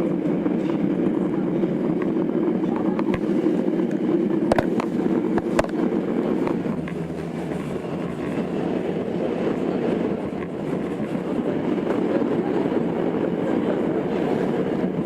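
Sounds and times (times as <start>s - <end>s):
train rolling noise: 0.0s - 15.0s
wheels clicking over rail joints: 3.8s - 12.5s.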